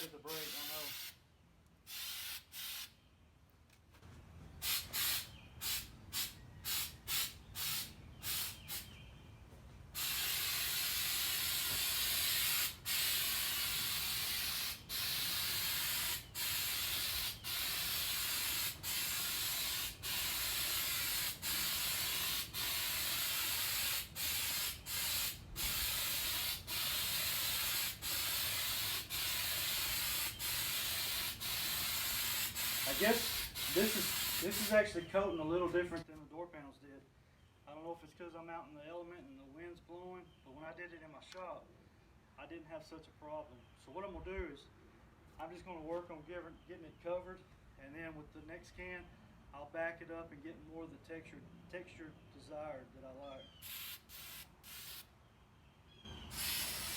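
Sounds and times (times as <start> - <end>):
aerosol spray can hissing: 0.3 - 1.2, 1.9 - 2.9, 4.6 - 8.8, 10.0 - 34.9, 53.6 - 55.1, 56.3 - 56.9.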